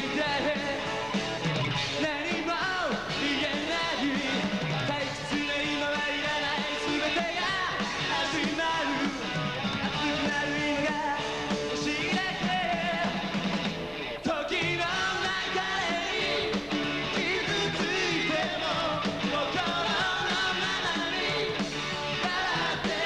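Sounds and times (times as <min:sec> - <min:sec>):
electric guitars: 0:00.0 - 0:23.0
rock band playing live: 0:00.0 - 0:23.0
person singing: 0:02.0 - 0:09.3, 0:09.9 - 0:13.2, 0:14.2 - 0:21.6.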